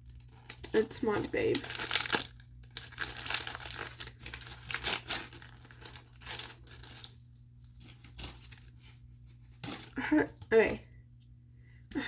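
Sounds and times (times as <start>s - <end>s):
packaging torn and crinkled: 0.0s - 8.8s.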